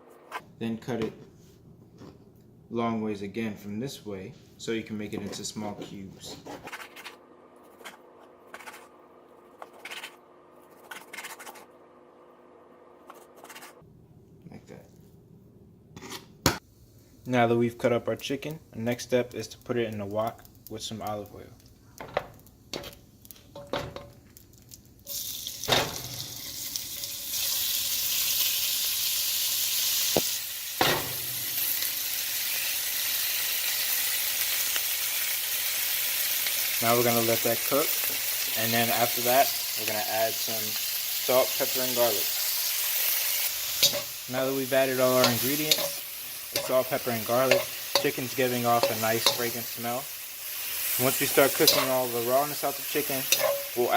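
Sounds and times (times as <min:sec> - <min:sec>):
chicken sizzling in oil: 0:24.4 - 0:53.9.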